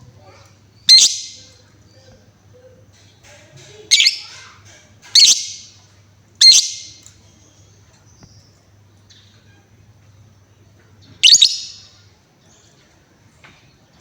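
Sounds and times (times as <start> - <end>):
faint bird chirps: 0.8 - 2.8, 3.9 - 4.4, 5.2 - 5.6, 6.4 - 9.8, 11.0 - 12.8
lovebird harsh shrieks: 11.2 - 11.8.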